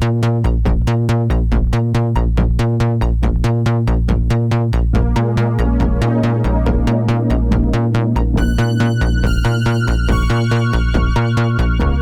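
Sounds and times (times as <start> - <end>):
pulsing synth bass: 4.9 - 12.0
synthesizer repeating notes: 5.0 - 11.7.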